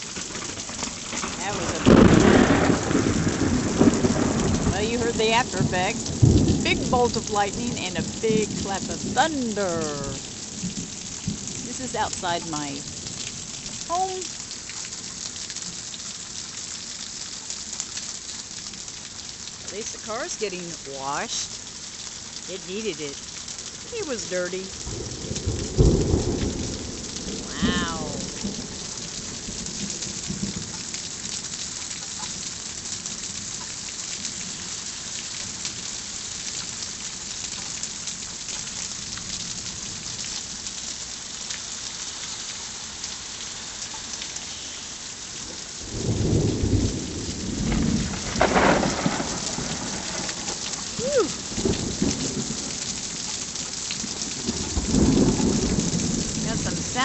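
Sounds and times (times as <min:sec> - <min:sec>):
heavy rain on surfaces: 0:00.0 - 0:57.0
rolling thunder: 0:00.4 - 0:13.5, 0:24.8 - 0:30.8, 0:45.8 - 0:53.1, 0:54.2 - 0:57.0.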